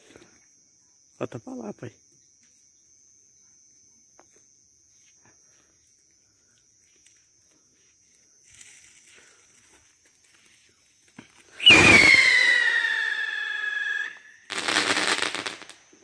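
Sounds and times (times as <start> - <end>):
faint high insect-like tone: 0.0 - 16.0
small crackles: 6.6 - 11.6
firework fuse fizzing: 8.5 - 16.0.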